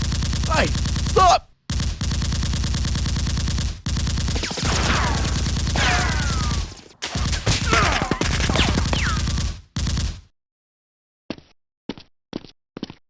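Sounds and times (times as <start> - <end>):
automatic gunfire: 0.0 - 10.0
falling ricochet whistles: 5.8 - 9.4.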